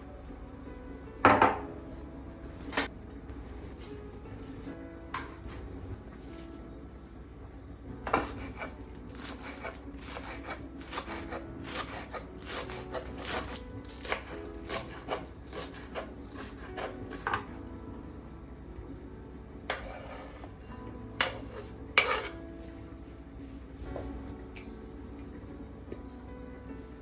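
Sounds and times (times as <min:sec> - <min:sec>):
knife chopping on cutting board: 0:08.1 - 0:17.4, 0:21.2 - 0:22.4.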